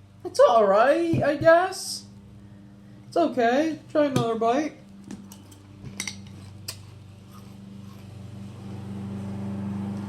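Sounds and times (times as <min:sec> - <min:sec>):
lawnmower engine droning: 0:07.0 - 0:10.0.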